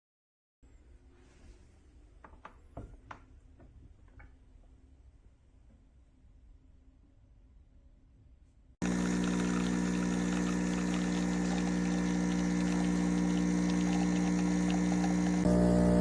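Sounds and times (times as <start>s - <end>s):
espresso machine pump humming: 8.8s - 16.0s.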